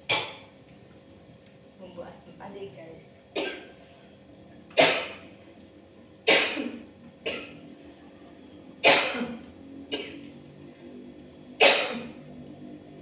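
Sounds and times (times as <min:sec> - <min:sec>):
woman coughing: 0:03.4 - 0:03.7, 0:04.8 - 0:05.2, 0:06.3 - 0:07.6, 0:08.8 - 0:10.2, 0:11.6 - 0:12.1.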